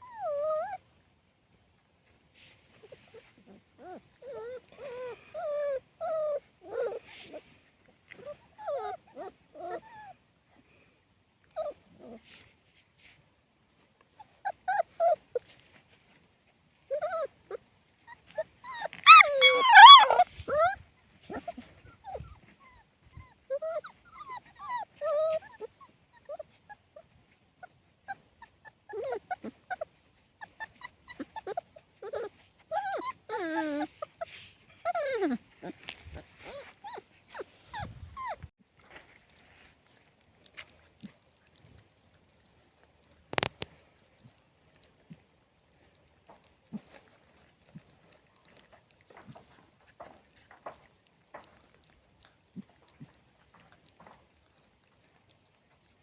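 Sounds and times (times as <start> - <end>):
puppies whimpering: 0.0 - 0.9, 2.8 - 10.2, 11.5 - 12.4, 14.2 - 15.7, 16.8 - 38.6.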